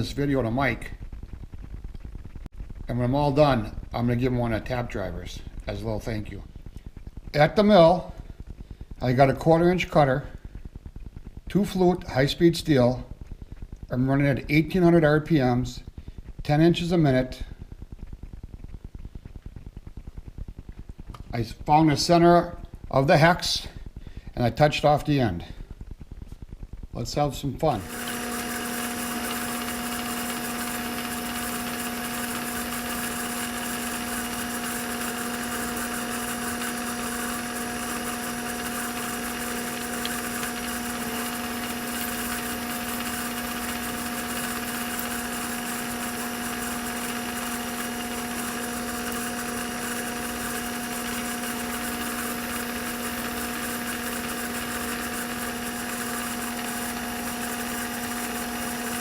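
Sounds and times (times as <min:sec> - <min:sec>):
milling machine cutting metal hum: 0:27.6 - 0:59.0.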